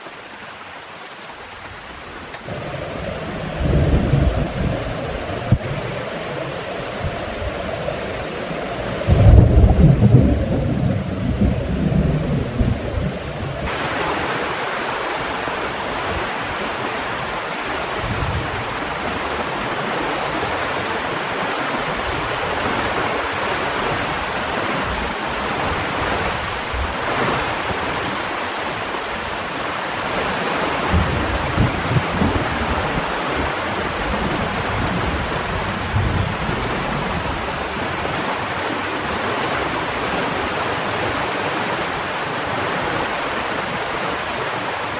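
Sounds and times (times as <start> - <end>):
heavy rain hissing: 0.0 - 44.9
thunder rumble: 2.4 - 14.3, 30.8 - 38.4.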